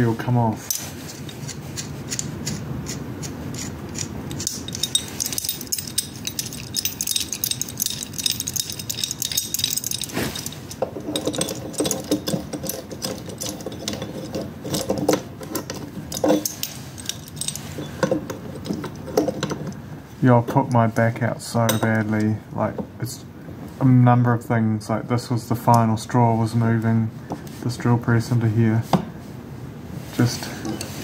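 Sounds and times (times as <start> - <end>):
metal tools clinking: 3.6 - 19.8, 20.5 - 22.3.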